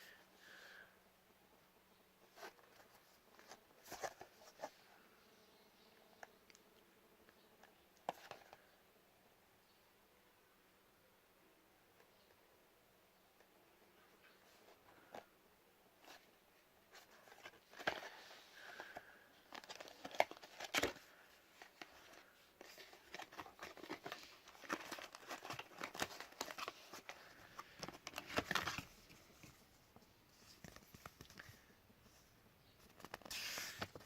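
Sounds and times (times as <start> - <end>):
plastic and paper wrapping crinkling: 16.9 - 29.6.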